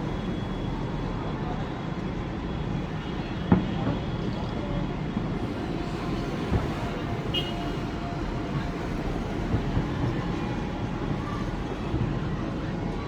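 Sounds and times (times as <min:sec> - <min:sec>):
fireworks rumble: 0:02.9 - 0:13.0.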